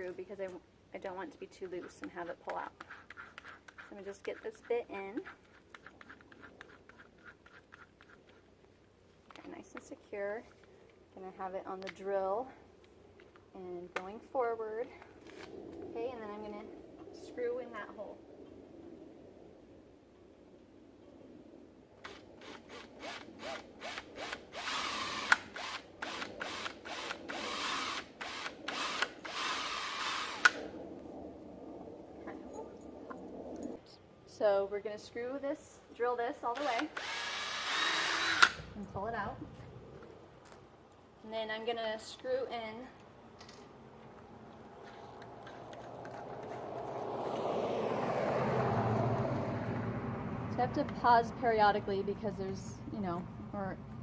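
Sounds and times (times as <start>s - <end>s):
power drill drilling: 22.4s - 30.6s, 36.7s - 38.6s
car approaching: 45.2s - 51.4s.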